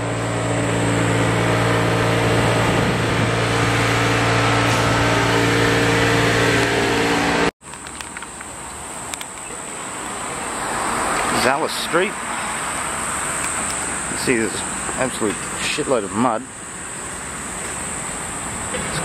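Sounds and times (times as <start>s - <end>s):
loud engine hum: 0.0s - 7.6s
street noise: 0.0s - 19.0s.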